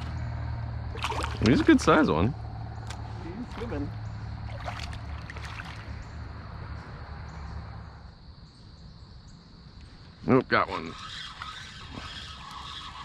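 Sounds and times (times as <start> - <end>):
small knocks or splashes: 0.9 - 1.9, 2.9 - 6.0
water lapping against boat: 0.9 - 2.1, 2.9 - 6.2.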